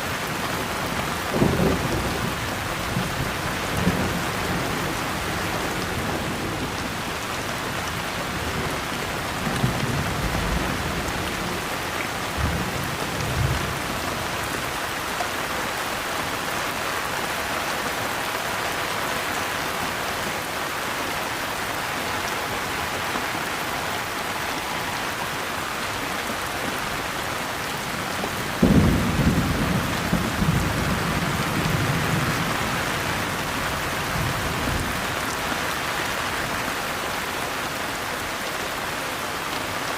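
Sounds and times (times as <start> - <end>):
steady rain falling: 0.0 - 39.9
thunder rumbling: 28.2 - 32.7.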